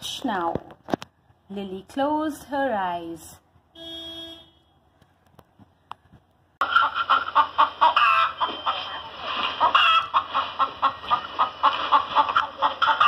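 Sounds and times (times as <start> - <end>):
hens clucking: 6.6 - 13.0.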